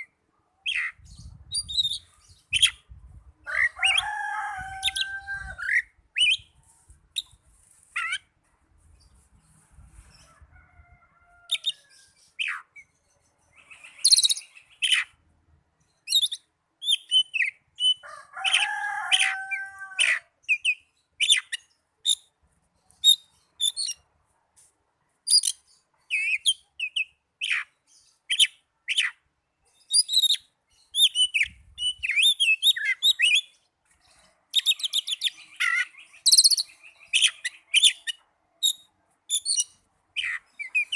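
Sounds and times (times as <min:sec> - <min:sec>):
bird singing whistles and chirps: 0:00.7 - 0:02.8, 0:29.8 - 0:33.5, 0:34.6 - 0:40.9
fast bird trill: 0:13.6 - 0:15.1, 0:34.6 - 0:40.9.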